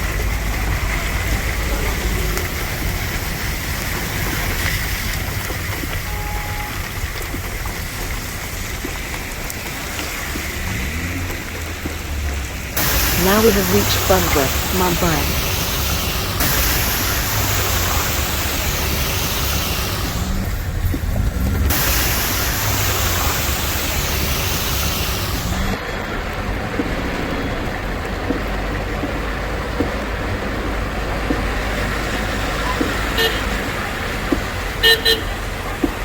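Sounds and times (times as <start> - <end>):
heavy rain hissing: 0.0 - 36.0
road traffic: 0.0 - 36.0
car horn toot: 6.0 - 6.9, 33.1 - 33.6, 34.8 - 35.4.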